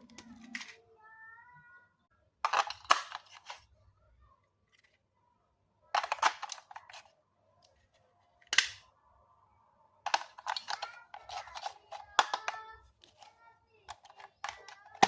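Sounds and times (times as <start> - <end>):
hard objects clicking and rattling: 2.4 - 3.6, 6.0 - 7.1, 10.1 - 15.0.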